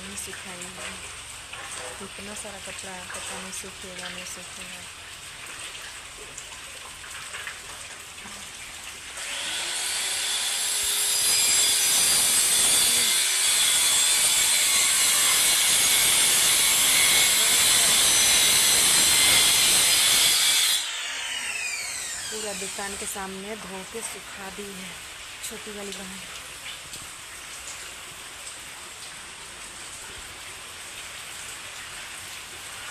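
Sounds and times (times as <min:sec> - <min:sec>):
heavy rain pouring: 0:00.0 - 0:20.6, 0:22.0 - 0:32.9.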